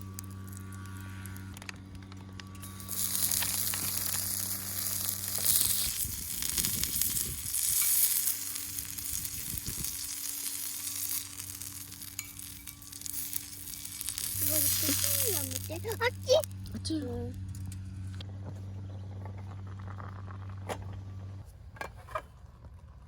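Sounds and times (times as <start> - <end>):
food sizzling in frying: 0.0 - 1.4, 2.6 - 16.6
low hum: 0.0 - 23.0.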